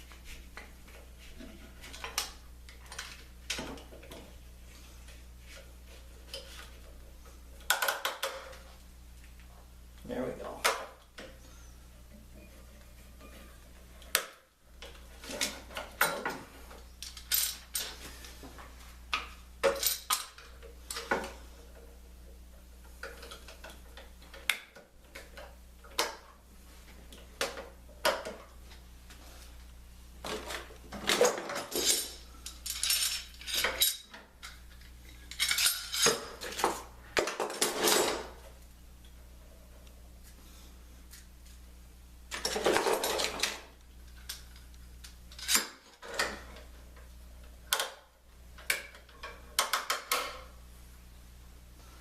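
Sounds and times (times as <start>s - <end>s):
metal tools clinking and clattering: 19.6s - 21.1s, 31.0s - 34.2s, 35.2s - 36.7s.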